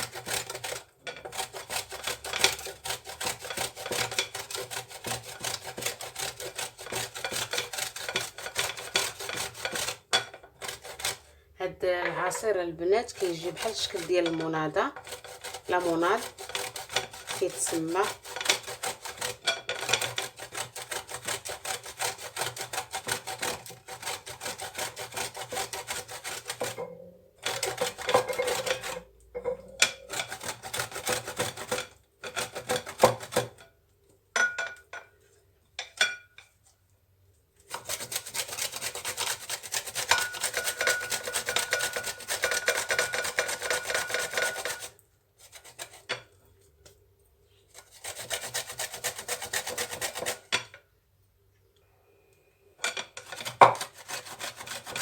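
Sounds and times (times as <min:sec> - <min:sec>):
frozen lemon grated on grater: 0:00.0 - 0:11.4, 0:12.1 - 0:26.8, 0:27.4 - 0:29.2, 0:29.8 - 0:33.6, 0:37.6 - 0:46.4, 0:47.7 - 0:50.6, 0:53.0 - 0:55.0.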